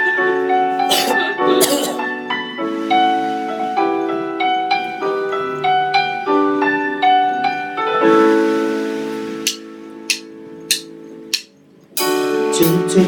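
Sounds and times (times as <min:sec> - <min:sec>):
piano ballad: 0:00.0 - 0:13.0
sharp percussive click: 0:09.5 - 0:11.6.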